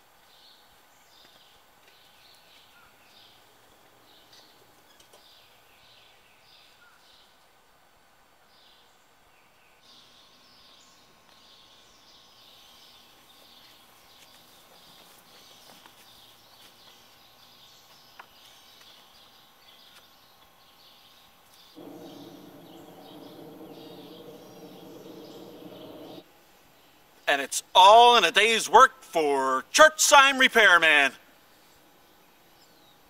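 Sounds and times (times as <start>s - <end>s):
birds chirping: 21.6s - 26.2s
steady hum of held tones: 21.8s - 26.8s.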